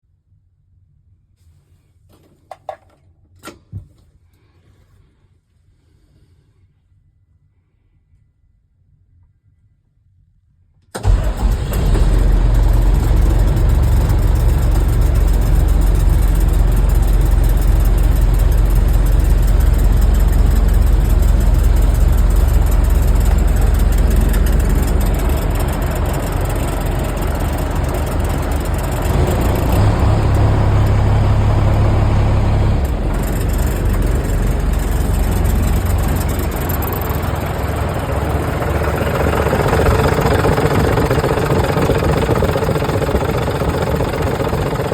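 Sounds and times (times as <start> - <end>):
deeper hum: 11.0 - 44.9
diesel truck engine idling: 11.0 - 44.9.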